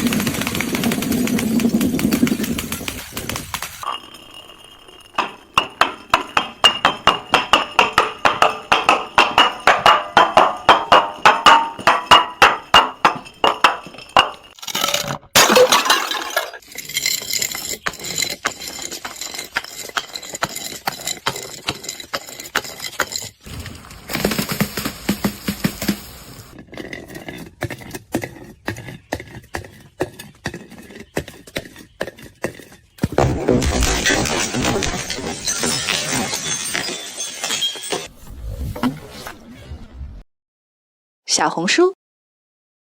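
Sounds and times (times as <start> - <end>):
glass clinking: 3.8 - 22.4, 35.4 - 38.1
glass breaking crunch: 13.2 - 17.7, 33.2 - 38.1
glass cracking: 14.5 - 16.6, 33.5 - 38.1.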